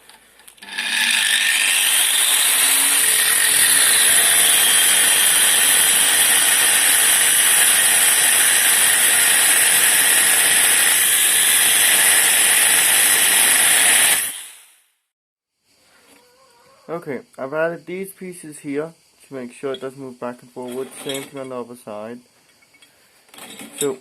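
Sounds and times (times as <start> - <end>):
angle grinder cutting steel: 0.6 - 14.7.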